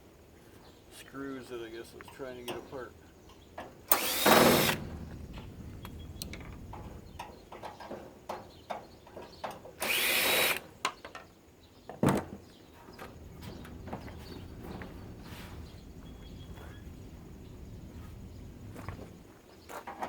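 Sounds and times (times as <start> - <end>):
power drill backing out screws: 3.9 - 7.0, 9.7 - 10.7.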